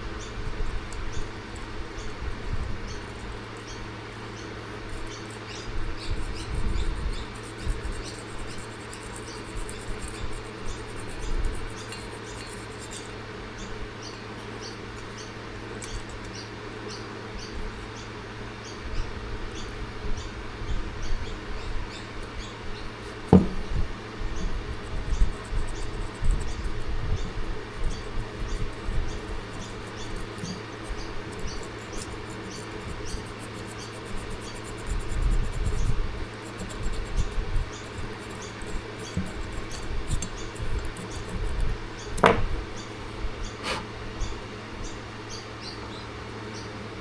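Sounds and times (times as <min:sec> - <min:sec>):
steady low hum: 0:00.0 - 0:47.0
metal tool clicks and scratches: 0:00.6 - 0:13.2, 0:14.0 - 0:17.0, 0:23.0 - 0:23.8, 0:24.4 - 0:43.0.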